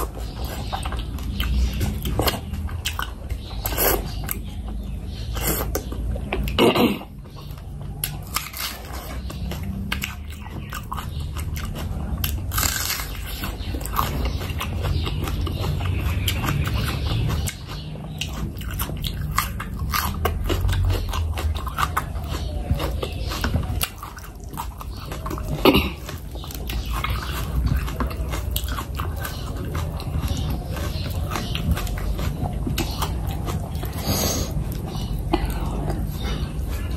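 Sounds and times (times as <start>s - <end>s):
wet chewing: 0.0s - 36.9s
crunching raw onion: 7.5s - 36.9s.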